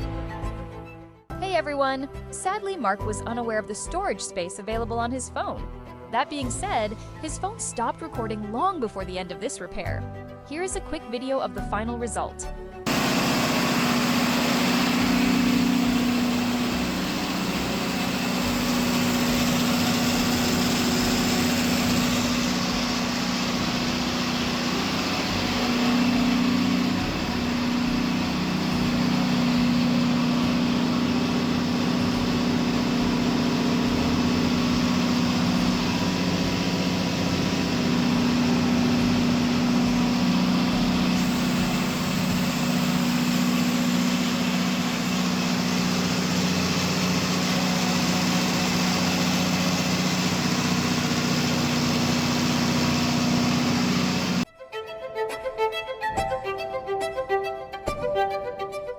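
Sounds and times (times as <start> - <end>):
generator engine running: 12.8 - 54.5.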